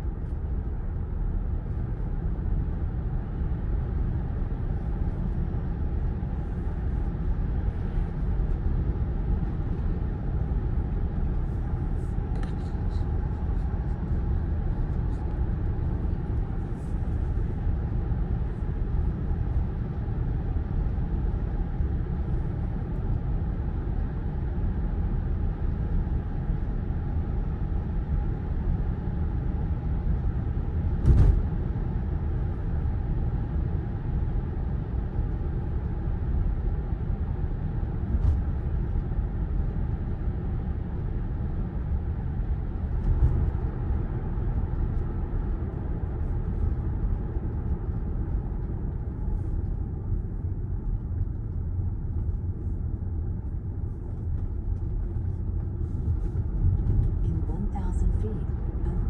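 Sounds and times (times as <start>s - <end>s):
sharp thump: 31.0s - 31.5s.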